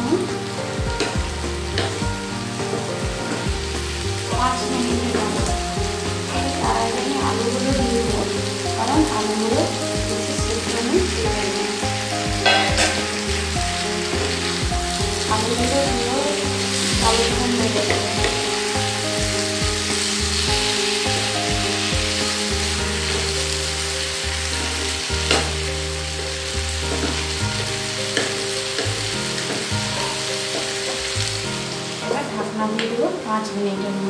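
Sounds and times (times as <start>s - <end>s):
food sizzling in oil: 0.0s - 34.0s
spatula scraping and knocking pan: 12.3s - 15.2s, 26.9s - 31.1s.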